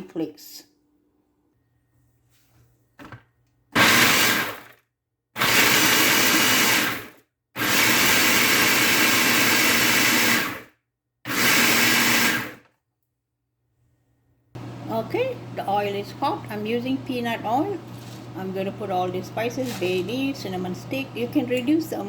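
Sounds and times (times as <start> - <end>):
electric food processor chopping: 3.7 - 4.8, 5.4 - 12.7, 14.6 - 22.0.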